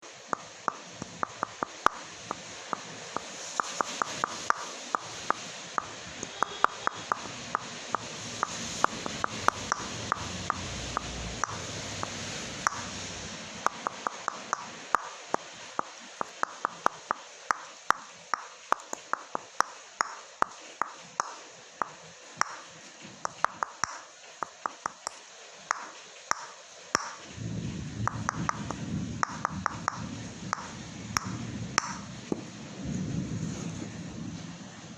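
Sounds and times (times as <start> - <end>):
steady hiss: 0.0 - 34.9
coconut shells tapping: 0.3 - 5.1, 13.7 - 15.1, 16.2 - 22.6, 23.2 - 27.2, 28.1 - 32.0.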